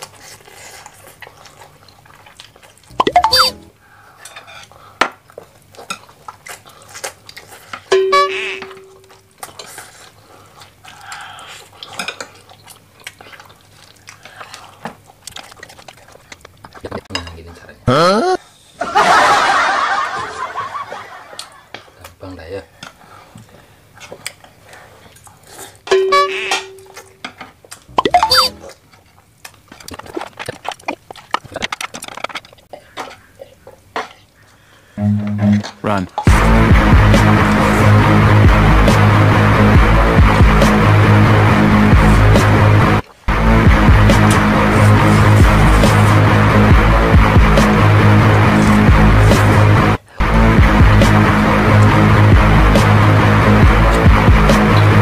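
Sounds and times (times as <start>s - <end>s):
child eating noodles: 0.0s - 3.0s, 3.8s - 7.9s, 9.0s - 17.1s, 23.0s - 25.9s, 27.7s - 35.4s
ringing note: 35.0s - 35.7s.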